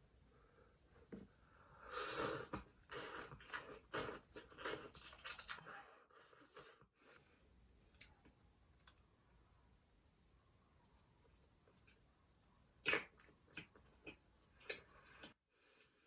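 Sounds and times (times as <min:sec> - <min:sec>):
mouth eating noises: 0:11.7 - 0:15.4.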